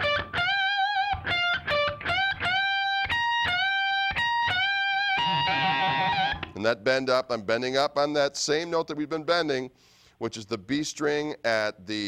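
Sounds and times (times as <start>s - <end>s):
electric guitar lead lick: 0.0s - 6.6s.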